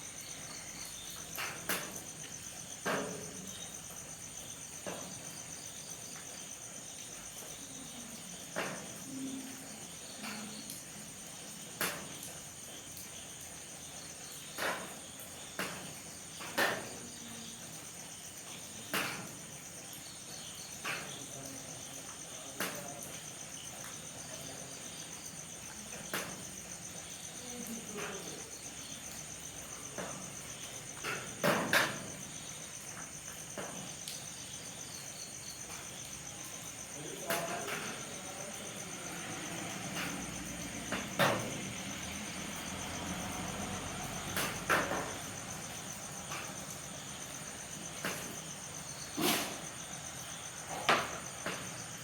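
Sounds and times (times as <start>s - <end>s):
crickets chirring: 0.0s - 52.0s
light rain: 0.0s - 52.0s.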